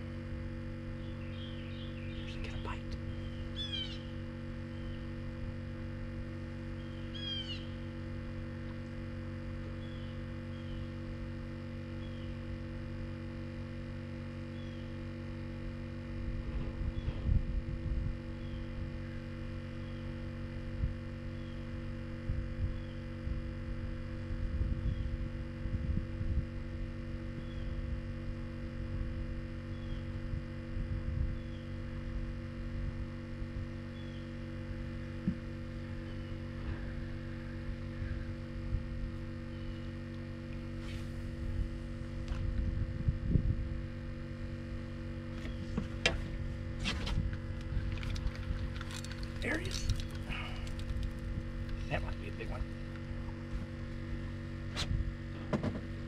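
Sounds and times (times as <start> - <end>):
low hum: 0.0 - 56.0
bird chirping: 1.0 - 4.1, 6.8 - 7.8, 9.8 - 11.0
irregular low rumbling: 15.6 - 26.6.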